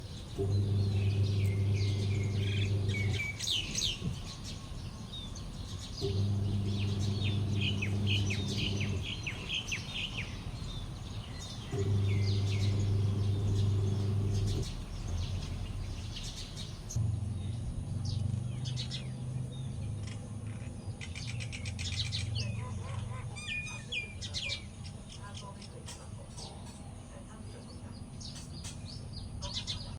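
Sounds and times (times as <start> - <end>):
low steady hum: 0.0 - 4.2, 6.0 - 9.6, 10.4 - 19.8
myna chirping and whistling: 0.6 - 10.8, 21.0 - 25.0.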